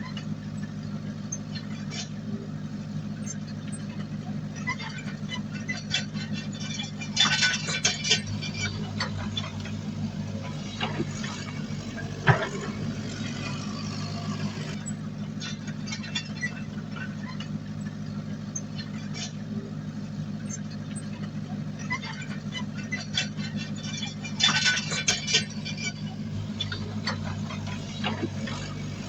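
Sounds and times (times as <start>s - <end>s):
heavy machinery diesel engine: 0.0s - 29.0s
metallic clanking: 6.8s - 14.8s, 23.9s - 29.0s.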